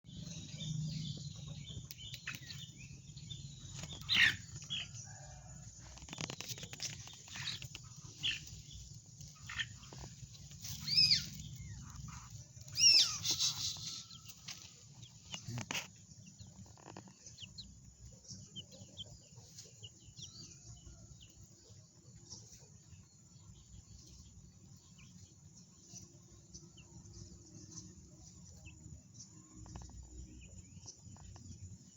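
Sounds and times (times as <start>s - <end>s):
sharp high bird calls: 3.8s - 4.7s, 10.6s - 14.5s
chicken squawks: 10.7s - 14.3s.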